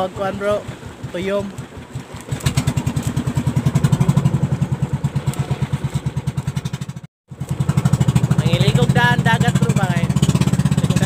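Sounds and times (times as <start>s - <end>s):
boat engine chugging: 0.0s - 11.0s.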